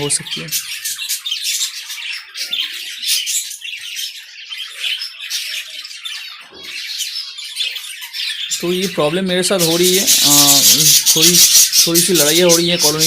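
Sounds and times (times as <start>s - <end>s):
budgerigars chattering: 0.0s - 13.0s.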